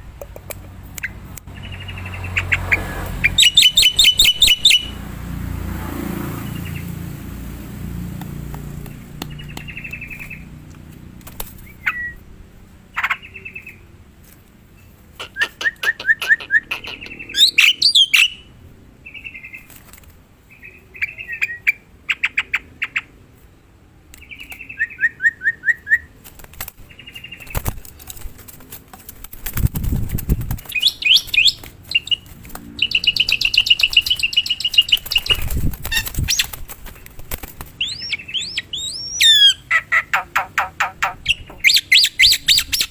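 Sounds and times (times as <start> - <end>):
starling calling and singing: 1.5 - 5.0, 15.2 - 18.5, 30.3 - 36.6, 37.8 - 42.9.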